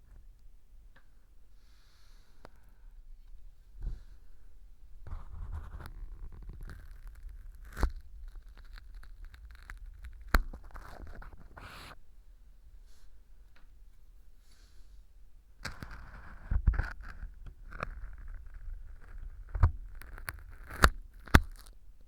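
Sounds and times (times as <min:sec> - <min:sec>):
ear tool scraping gritty earwax: 0:05.1 - 0:12.0, 0:15.6 - 0:21.8.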